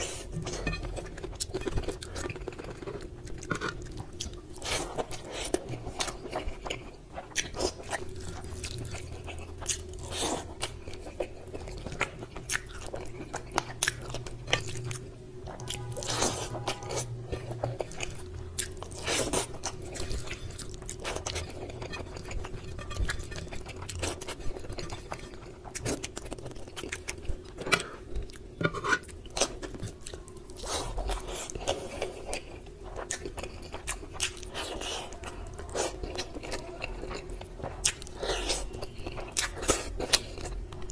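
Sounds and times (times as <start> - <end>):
faint hum: 0.0 - 40.9
wet chewing and crunching: 0.0 - 40.9.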